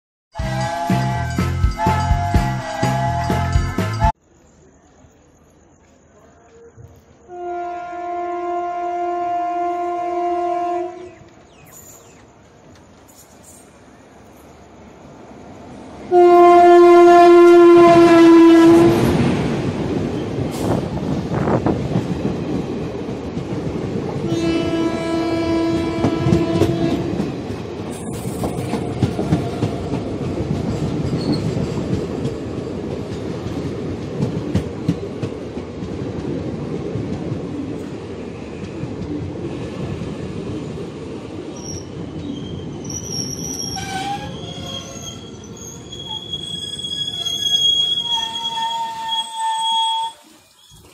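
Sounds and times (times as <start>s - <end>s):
train horn: 0.4s - 4.1s, 7.2s - 11.2s, 16.1s - 19.2s, 24.2s - 27.2s, 43.7s - 45.4s, 48.1s - 50.3s
train wheels rumbling and clattering: 17.8s - 49.4s
metallic wheel squeals: 31.1s - 31.6s, 41.6s - 50.9s.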